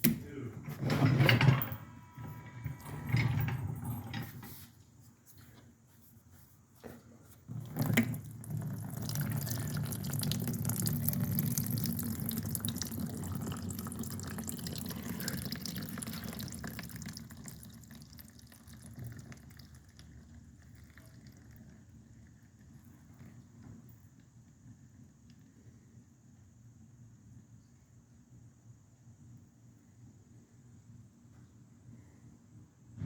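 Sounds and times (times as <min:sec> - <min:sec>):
oil pouring into a drain pan: 0:07.5 - 0:23.8.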